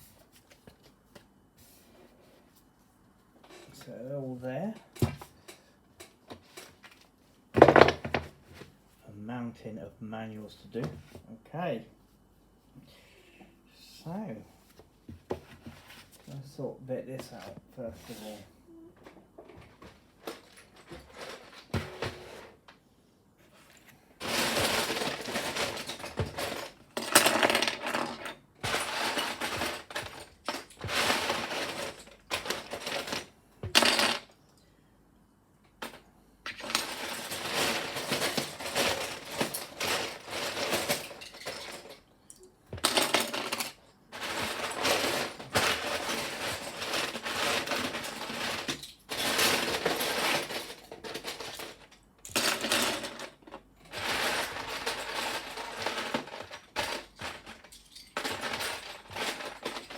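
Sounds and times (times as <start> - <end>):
plastic bricks clattering: 24.2 - 34.3, 35.8 - 42.0, 42.8 - 59.9.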